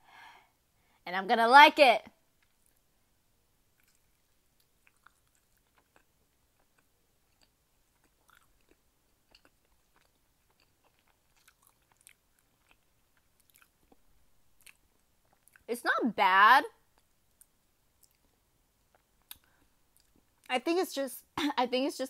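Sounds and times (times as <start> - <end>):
soft chewing: 2.3 - 2.9, 3.7 - 15.7, 16.9 - 20.5
wet mouth clicks: 3.8 - 12.2.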